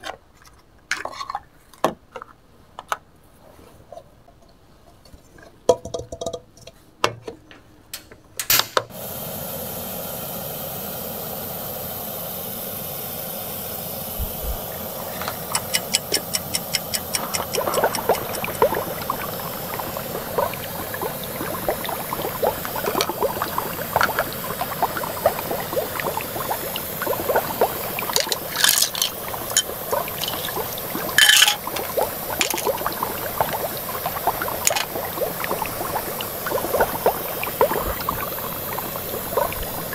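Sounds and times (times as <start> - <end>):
water heating hiss: 8.9 - 39.9
small bubbles crackling: 14.2 - 39.9
quick ticks: 15.5 - 18.7.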